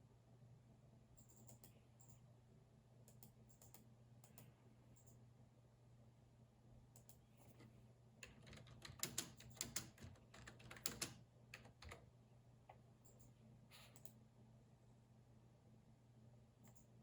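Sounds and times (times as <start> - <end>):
faint low hum: 0.0 - 17.0
keyboard typing: 7.0 - 12.1.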